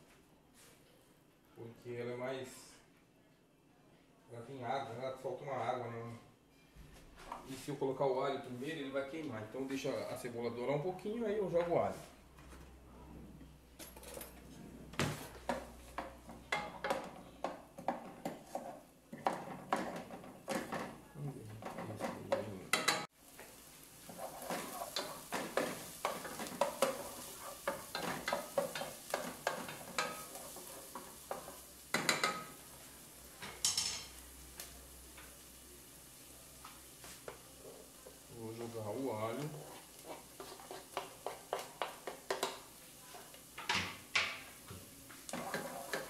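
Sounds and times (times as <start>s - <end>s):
wooden spoon scraping a pot: 15.2s - 22.5s, 24.0s - 32.5s, 37.0s - 43.4s, 45.2s - 46.0s
onion sizzling in oil: 15.2s - 46.0s.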